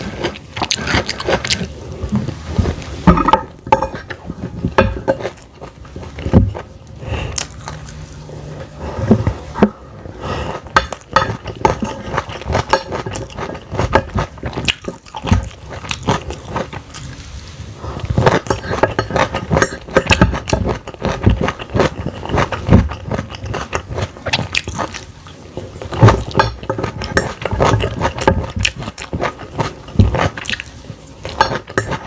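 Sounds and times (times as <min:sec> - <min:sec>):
chewing and biting food: 0:00.0 - 0:02.9, 0:07.3 - 0:08.5, 0:10.6 - 0:17.2, 0:18.0 - 0:32.0
cutlery clinking on a plate: 0:31.3 - 0:32.0.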